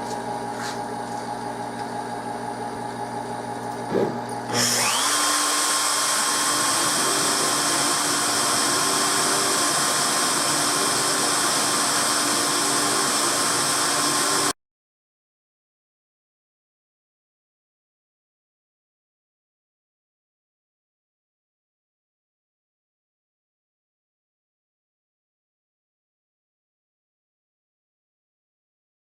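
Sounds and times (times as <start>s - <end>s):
router spindle motor whirring: 0.0s - 14.5s.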